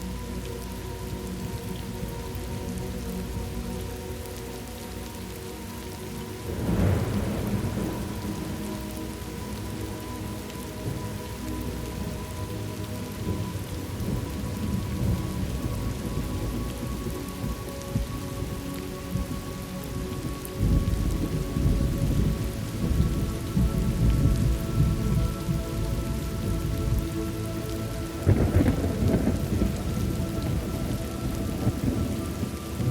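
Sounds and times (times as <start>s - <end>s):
steady rain falling: 0.0s - 32.9s
rolling thunder: 6.4s - 9.6s, 13.3s - 19.4s, 20.1s - 27.2s, 27.8s - 32.9s.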